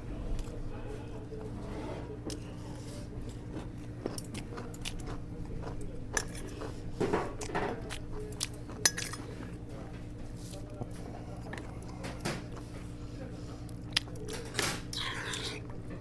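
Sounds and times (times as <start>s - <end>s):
utensils clinking on dishes: 6.1s - 7.8s, 8.7s - 9.3s.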